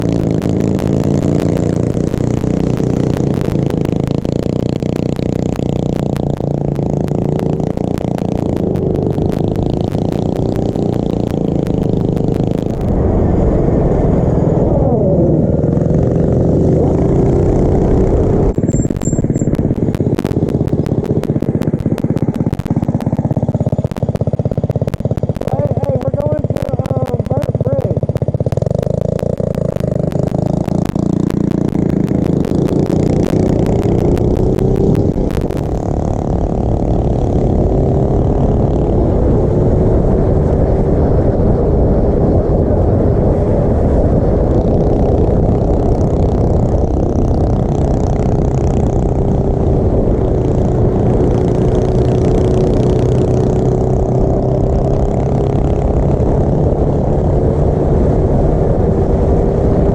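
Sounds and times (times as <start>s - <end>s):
small motorbike engine running: 0.0s - 59.9s.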